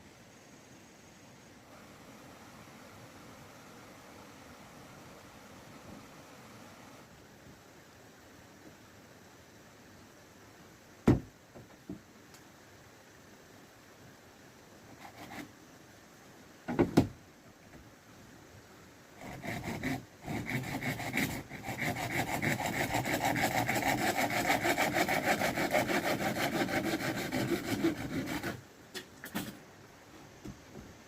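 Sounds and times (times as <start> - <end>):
hand saw cutting: 19.2 - 28.6.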